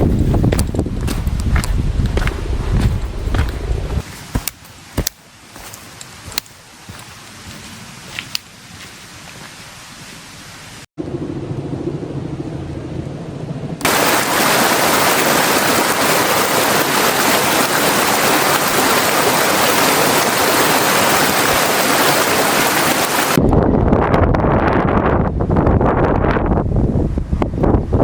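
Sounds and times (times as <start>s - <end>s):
wind buffeting microphone: 0.0s - 4.0s, 11.0s - 28.0s
rushing water: 0.0s - 10.9s, 13.8s - 23.4s.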